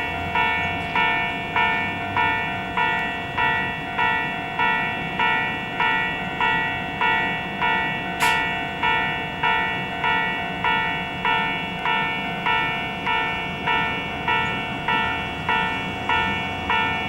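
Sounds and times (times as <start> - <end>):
level-crossing warning bell ringing: 0.0 - 17.0
brief sharp click: 8.2 - 8.4.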